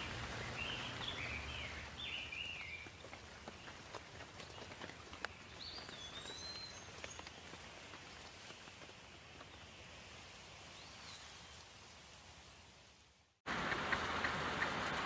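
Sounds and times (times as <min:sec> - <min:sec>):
soft rain falling: 0:00.0 - 0:15.0
water dripping: 0:13.5 - 0:15.0.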